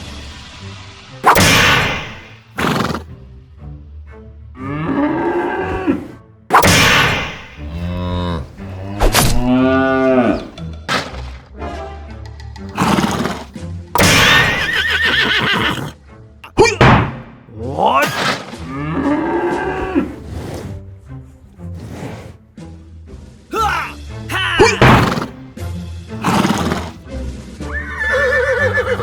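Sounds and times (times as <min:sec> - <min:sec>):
background music: 0:00.0 - 0:29.0
horse whinnies: 0:01.2 - 0:03.1, 0:04.6 - 0:10.6, 0:12.8 - 0:20.8, 0:23.6 - 0:25.4, 0:26.2 - 0:27.0, 0:27.7 - 0:29.0
farm animal calls: 0:12.8 - 0:17.0, 0:27.8 - 0:29.0.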